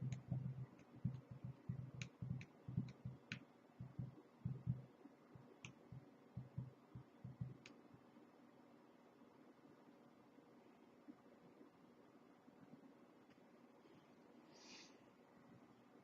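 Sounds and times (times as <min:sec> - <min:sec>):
faint keyboard typing: 0:00.0 - 0:08.1.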